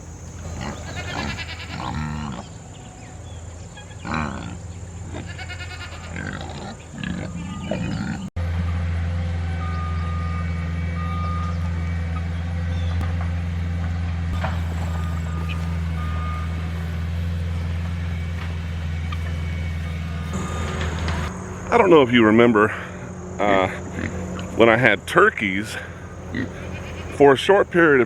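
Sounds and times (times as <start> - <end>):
heavy machinery engine humming: 0.0 - 28.0
reversing alarm beeps: 7.0 - 12.8, 14.4 - 21.4.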